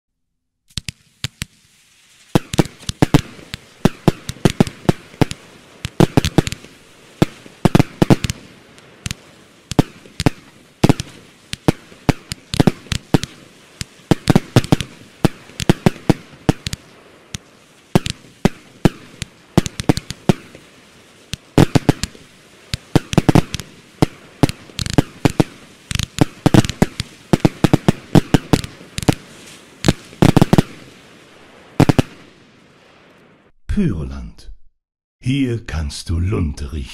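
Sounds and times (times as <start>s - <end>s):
firework cracks and pops: 0.7s - 33.3s.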